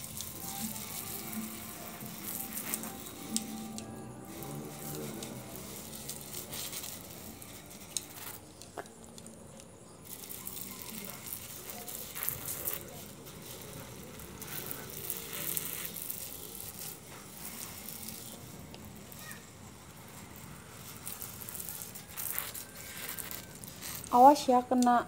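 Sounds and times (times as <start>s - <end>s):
pressure sprayer hissing: 0.0s - 24.8s.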